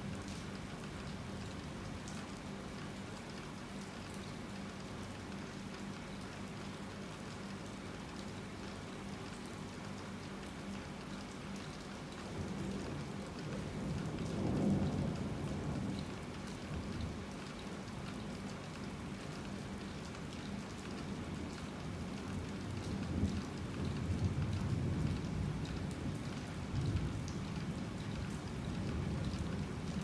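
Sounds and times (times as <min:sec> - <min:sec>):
heavy rain falling: 0:12.3 - 0:20.3.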